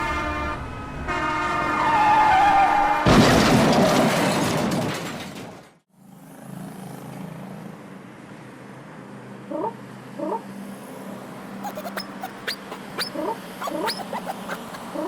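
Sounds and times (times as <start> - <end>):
truck horn blaring: 0.0 - 2.1.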